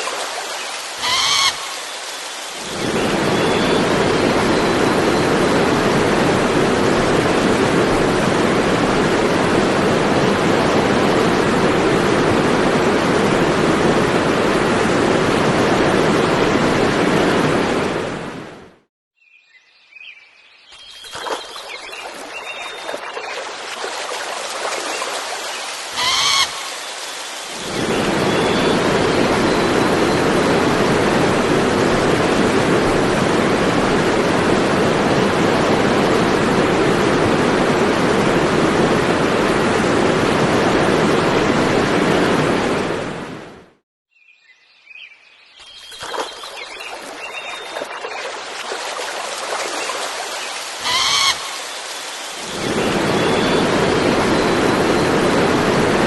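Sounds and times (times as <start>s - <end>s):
waterfall rushing: 0.0s - 18.4s, 21.8s - 43.1s, 46.8s - 56.0s
bird calls: 1.0s - 3.8s, 25.6s - 27.3s, 49.8s - 54.6s.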